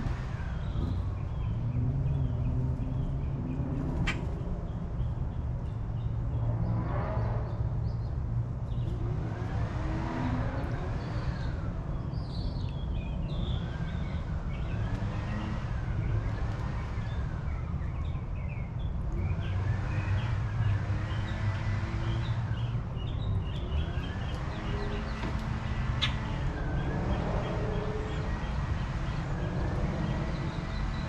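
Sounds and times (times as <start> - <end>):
low rumble of traffic: 0.0 - 31.0
small birds chirping: 7.5 - 31.0.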